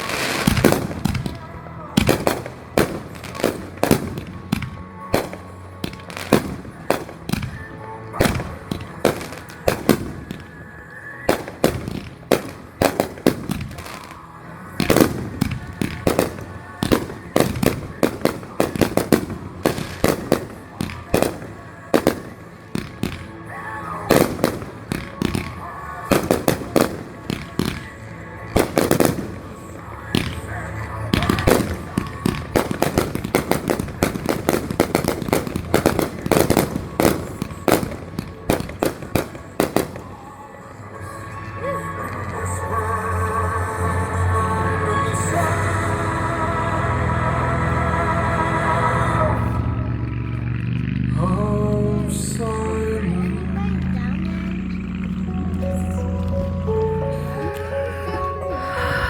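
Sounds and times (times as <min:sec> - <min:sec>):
fireworks bursting: 0:00.0 - 0:43.0.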